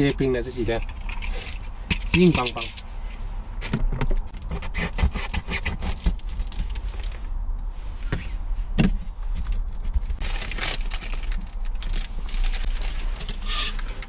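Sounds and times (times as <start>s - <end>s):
objects clicking and scraping: 0.8s - 2.9s.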